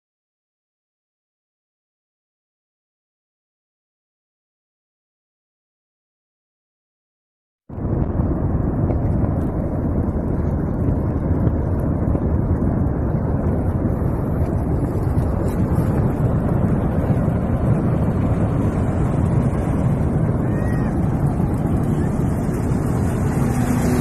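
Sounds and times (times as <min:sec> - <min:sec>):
loud low rumble: 0:07.7 - 0:24.0.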